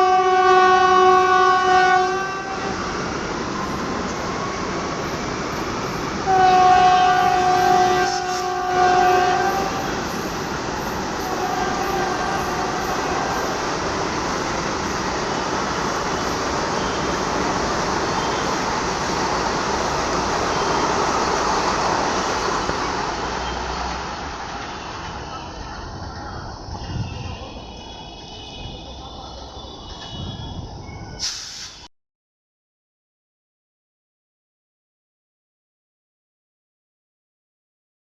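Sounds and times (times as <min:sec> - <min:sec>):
two-tone train horn: 0:00.0 - 0:02.8, 0:06.2 - 0:10.3, 0:11.1 - 0:13.6
electric train rushing past: 0:00.0 - 0:31.9.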